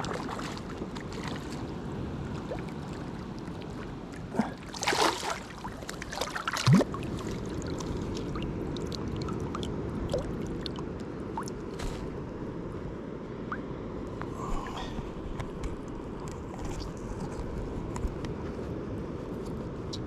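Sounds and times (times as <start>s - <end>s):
shallow water splashing: 0.0s - 12.2s
steady low rumble: 6.7s - 20.0s.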